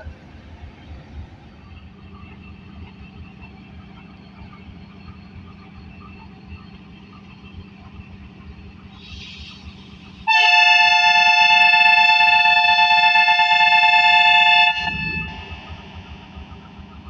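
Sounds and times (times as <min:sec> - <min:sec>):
locomotive air horn blast: 0:10.3 - 0:15.6.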